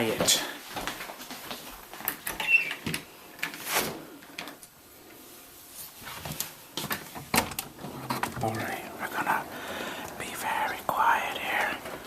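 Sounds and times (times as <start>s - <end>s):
door squeak: 2.3s - 2.9s.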